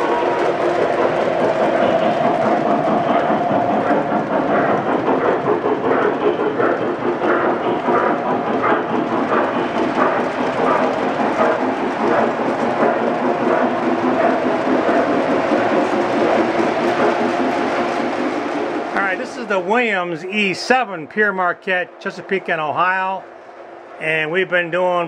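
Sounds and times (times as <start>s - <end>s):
model train motor humming: 0.0s - 19.7s
wheels clicking over rail joints: 0.0s - 21.2s.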